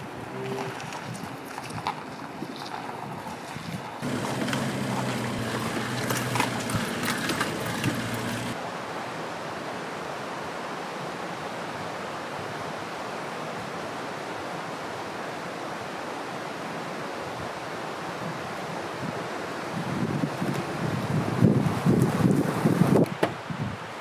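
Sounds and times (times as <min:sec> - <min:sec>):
vehicle engine knocking and rattling: 0:04.0 - 0:08.6.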